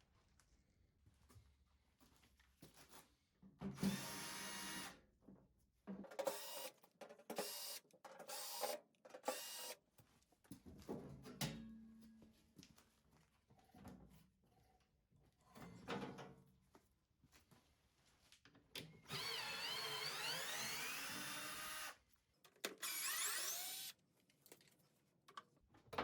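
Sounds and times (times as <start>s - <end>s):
electric screwdriver motor: 9.3s - 9.8s, 19.1s - 22.0s, 22.8s - 24.0s.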